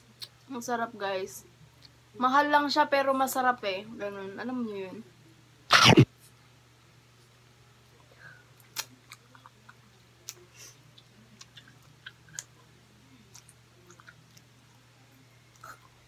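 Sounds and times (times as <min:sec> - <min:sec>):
mouth chewing meat: 0:08.6 - 0:14.6.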